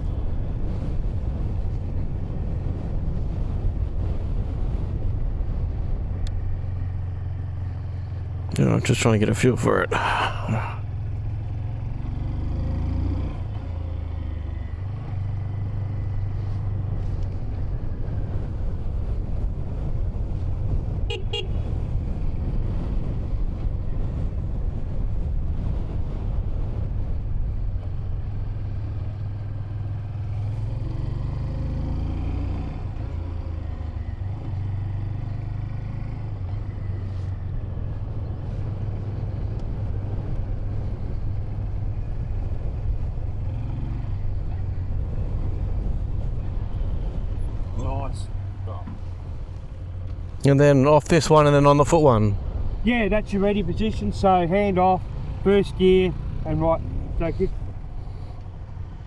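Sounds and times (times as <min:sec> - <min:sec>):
motorcycle engine revving: 0:11.0 - 0:17.6
motorcycle horn toot: 0:21.1 - 0:21.6.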